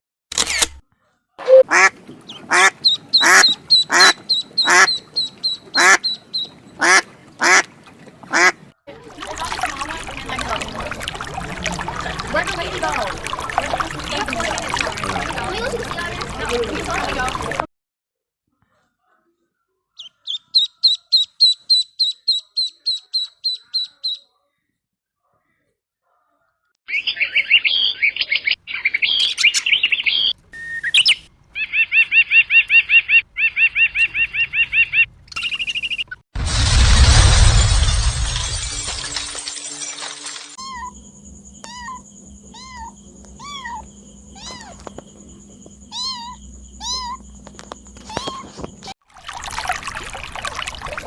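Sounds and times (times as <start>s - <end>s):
bird chirping: 1.4s - 6.7s, 20.0s - 24.3s, 26.9s - 36.2s, 40.6s - 48.9s
cat meowing: 41.7s - 44.9s, 45.9s - 47.2s, 48.1s - 48.6s.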